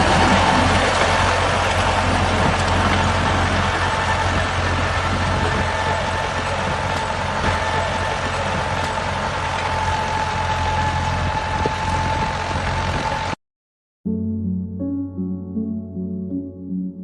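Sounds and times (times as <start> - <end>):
engine droning: 0.0 - 13.4
thin steady whine: 0.0 - 13.4.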